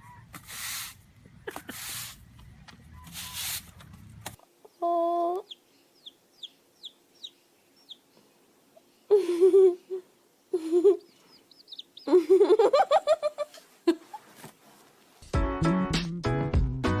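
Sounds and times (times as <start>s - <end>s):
birds chirping: 4.6s - 13.2s
bird wavering calls: 11.0s - 12.2s.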